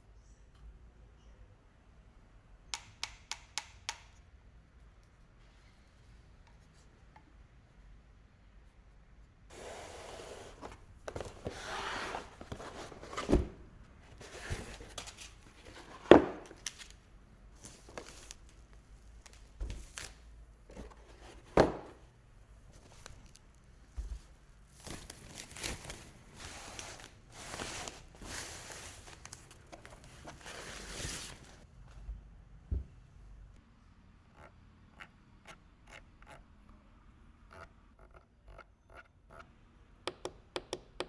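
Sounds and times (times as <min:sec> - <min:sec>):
box thudding: 0:09.5 - 0:16.7, 0:20.7 - 0:22.0
packaging rustling and tearing: 0:24.7 - 0:31.6.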